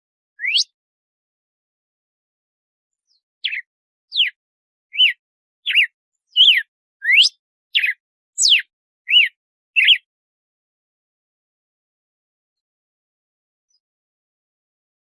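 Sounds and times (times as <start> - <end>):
bird whistling song: 0.4 - 0.8, 3.0 - 10.1.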